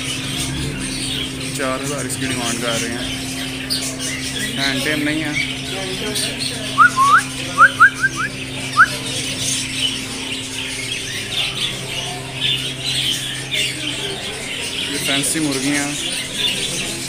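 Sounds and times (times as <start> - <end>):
birds chattering and squawking: 0.0 - 17.0
rising whistled chirps: 6.8 - 8.9.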